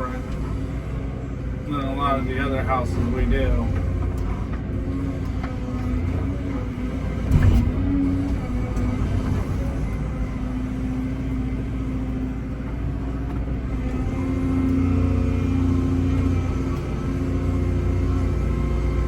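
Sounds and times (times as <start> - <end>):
excavator engine and hydraulics: 0.0 - 19.0.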